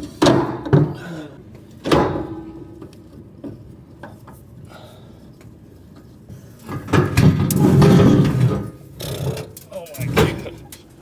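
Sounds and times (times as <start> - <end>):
metal clanking and scraping: 6.7 - 11.0.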